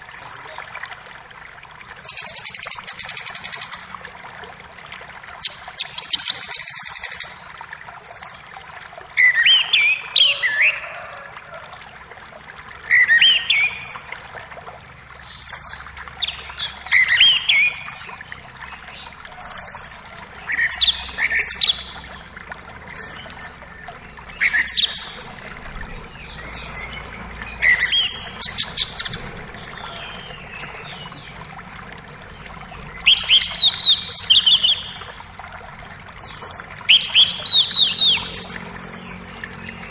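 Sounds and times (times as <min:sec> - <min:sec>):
creek rushing: 0:00.0 - 0:39.9
songbirds chirping: 0:08.5 - 0:39.9.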